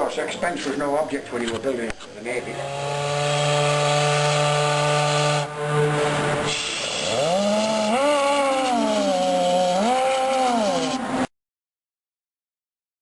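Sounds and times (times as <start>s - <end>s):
steam whistle with sliding pitch: 3.2s - 11.3s
steam hissing: 6.4s - 9.5s.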